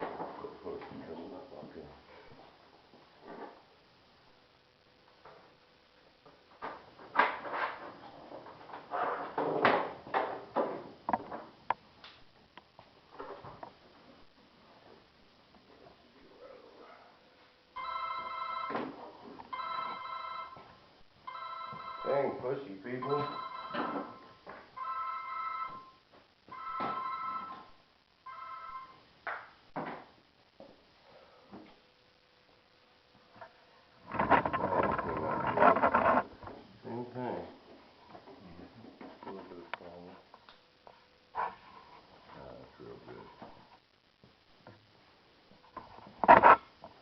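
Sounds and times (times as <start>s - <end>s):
telephone ringing: 17.8s - 29.0s
resin mold cracking and creaking: 34.0s - 36.3s.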